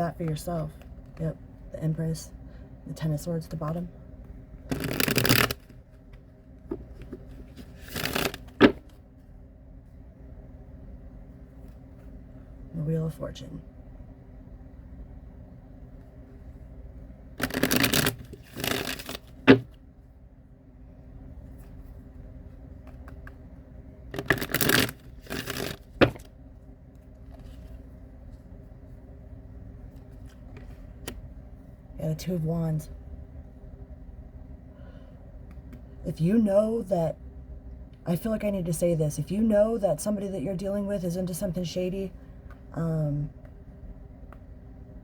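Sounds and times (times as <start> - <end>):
steady low hum: 0.0 - 45.0
cards being shuffled: 4.6 - 9.0, 17.4 - 19.8, 24.1 - 26.3.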